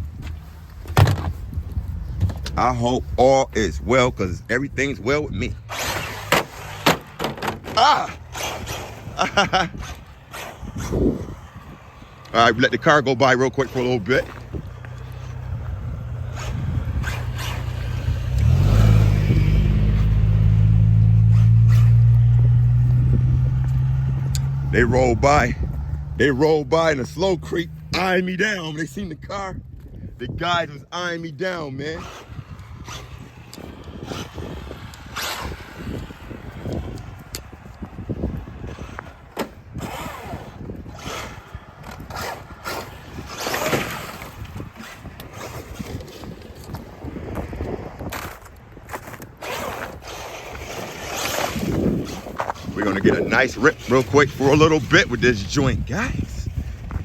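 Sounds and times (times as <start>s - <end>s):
tyres scrabbling on rough ground: 0.0s - 29.6s, 30.2s - 57.0s
knocks over rough ground: 0.2s - 2.6s, 6.1s - 8.0s
toy truck electric motor whining: 5.6s - 13.0s, 13.6s - 19.4s, 31.9s - 46.8s, 49.0s - 54.8s
car engine passing slowly: 8.2s - 28.6s, 32.0s - 57.0s.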